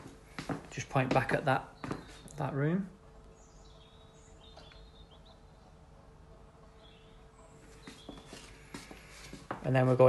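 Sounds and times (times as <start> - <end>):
faint steady hum: 0.0 - 10.0
faint bird chirps: 3.3 - 9.2.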